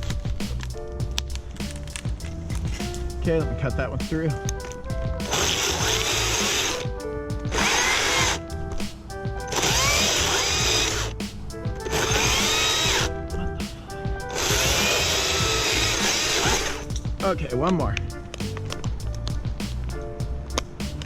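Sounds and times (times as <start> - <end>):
background music: 0.0 - 21.0
chainsaw cutting wood: 5.2 - 6.8, 7.5 - 8.4, 9.5 - 11.1, 11.9 - 13.1, 14.3 - 16.8.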